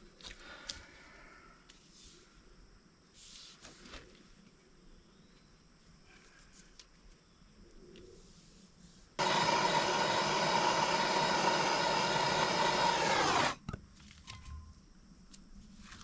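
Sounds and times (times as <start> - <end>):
power tool motor running: 9.2 - 13.6.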